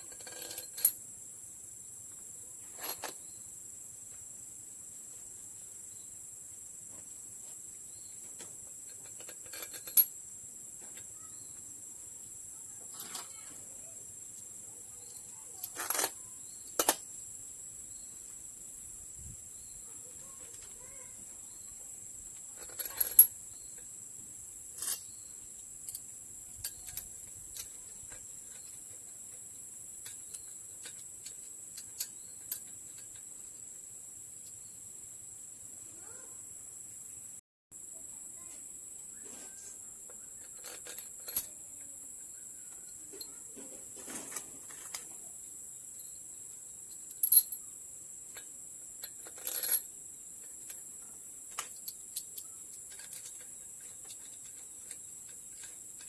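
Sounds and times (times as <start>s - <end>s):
metallic clinks of hand tools: 22.6s - 23.8s, 24.8s - 29.2s, 46.9s - 47.6s, 48.4s - 50.8s.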